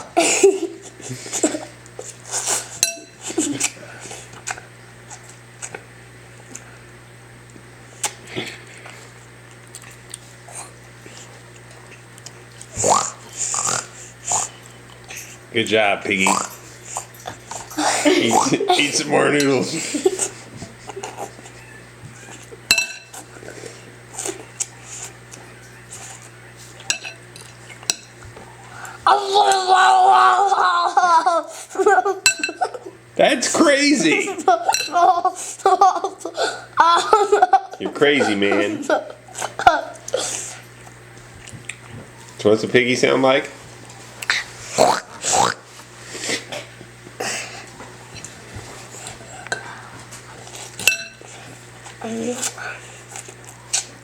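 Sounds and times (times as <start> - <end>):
cutlery clinking on a plate: 2.8 - 3.2, 22.7 - 23.2, 26.8 - 27.2, 50.8 - 51.2
child eating noodles: 19.7 - 22.5, 23.1 - 27.9, 44.2 - 54.0
cutlery scraping and clinking: 26.8 - 28.1.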